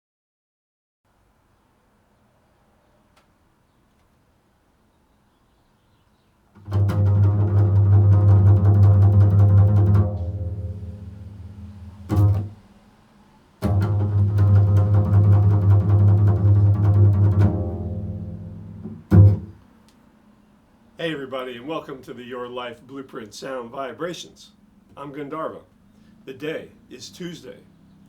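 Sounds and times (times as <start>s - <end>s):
bowed low string notes: 6.6s - 12.7s, 13.6s - 19.6s.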